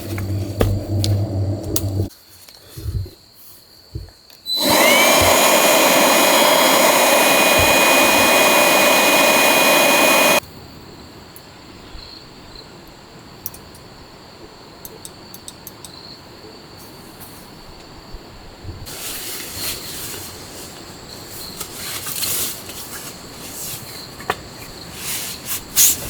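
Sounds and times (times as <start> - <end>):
high-speed electric motor whine: 0.0 - 2.1, 4.5 - 10.4.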